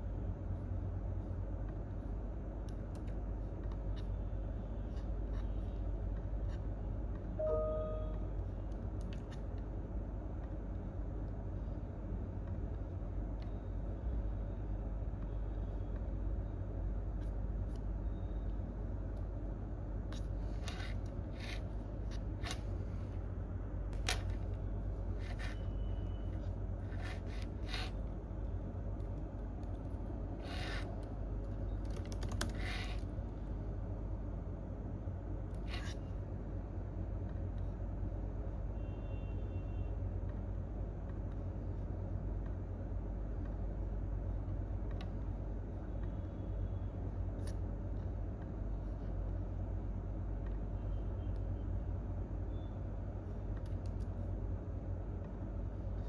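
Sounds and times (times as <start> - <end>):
low room hum: 0.0 - 56.0
keyboard keystrokes and clicks: 31.4 - 32.6.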